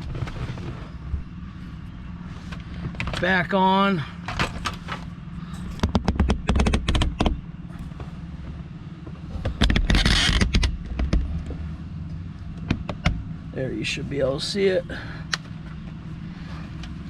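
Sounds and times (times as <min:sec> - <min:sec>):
scraping rustle: 0:00.0 - 0:01.2.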